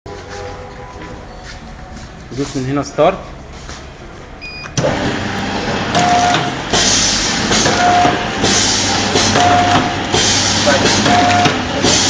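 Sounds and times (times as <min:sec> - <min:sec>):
short beep: 0:04.4 - 0:04.8
packaging machine running: 0:04.8 - 0:12.0.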